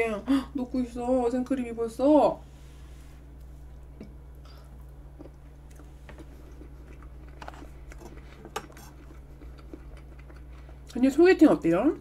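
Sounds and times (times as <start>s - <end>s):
person chewing cake: 3.4s - 11.0s.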